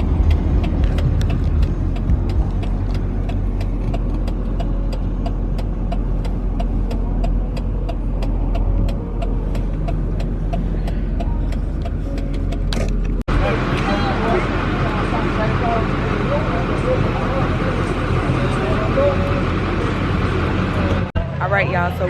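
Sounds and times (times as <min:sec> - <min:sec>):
fast even ticking: 0:00.0 - 0:12.6
car engine and road rumble: 0:00.0 - 0:22.0.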